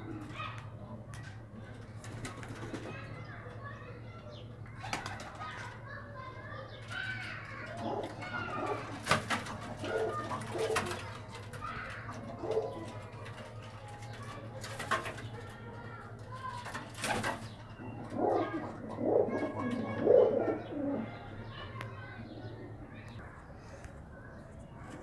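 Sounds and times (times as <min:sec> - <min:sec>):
pigeons cooing: 0:06.9 - 0:15.6, 0:17.0 - 0:25.0.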